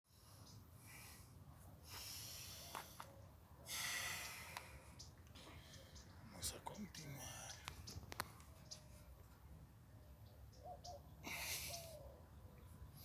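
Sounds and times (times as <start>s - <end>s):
person breathing heavily: 0.1s - 3.0s, 3.6s - 6.1s, 11.2s - 12.1s.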